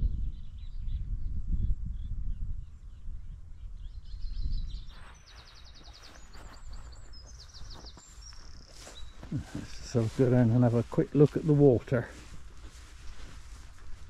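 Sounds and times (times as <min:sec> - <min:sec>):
songbirds singing trilled phrases: 0:00.0 - 0:14.0
wind buffeting microphone: 0:00.0 - 0:14.0.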